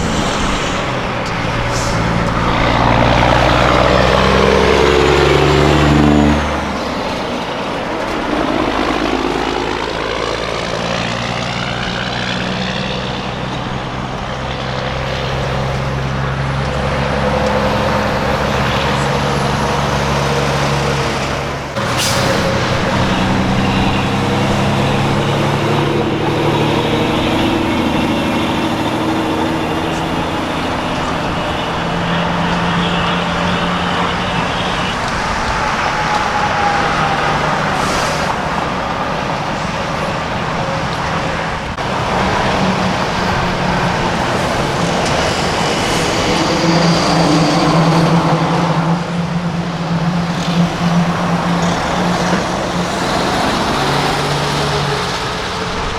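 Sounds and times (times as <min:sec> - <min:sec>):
short air hisses: 0:00.0 - 0:02.9, 0:21.8 - 0:25.1
diesel truck engines: 0:00.0 - 0:55.9
road noise: 0:00.0 - 0:55.9.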